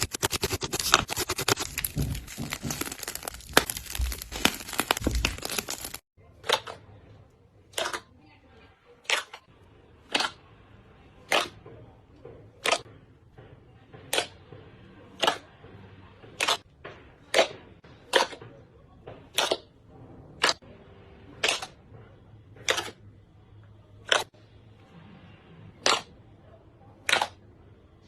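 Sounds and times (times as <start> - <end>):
slime popping: 0.2 - 6.0.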